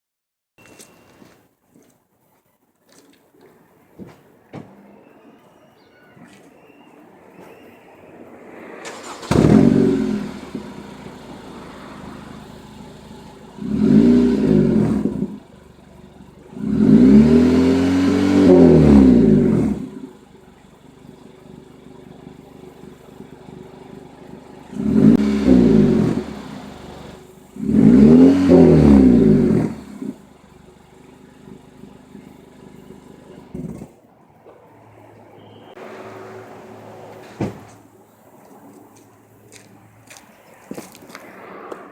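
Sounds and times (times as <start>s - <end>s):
car engine idling: 8.8s - 34.0s
car engine revving: 8.8s - 34.0s.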